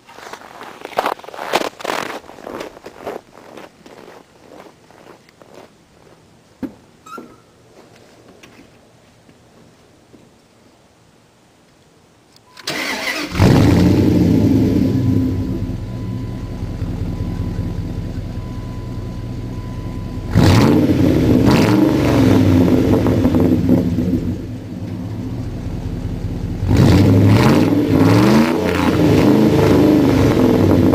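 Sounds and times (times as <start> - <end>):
truck engine idling and revving: 13.0 - 30.9.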